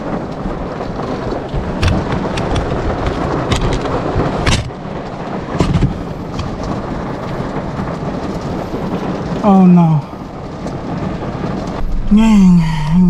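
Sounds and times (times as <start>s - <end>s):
low rumble: 0.0s - 13.0s
rain drumming on car roof: 0.0s - 13.0s.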